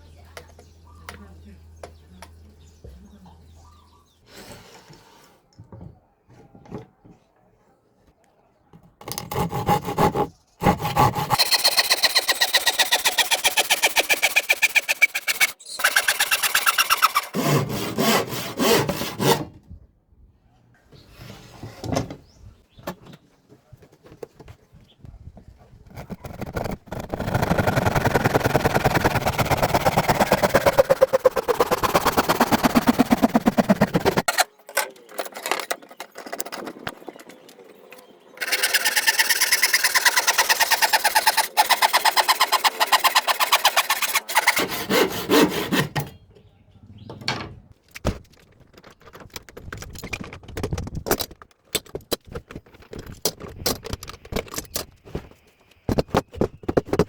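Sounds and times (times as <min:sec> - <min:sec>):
power tool working wood: 0:26.6 - 0:34.3.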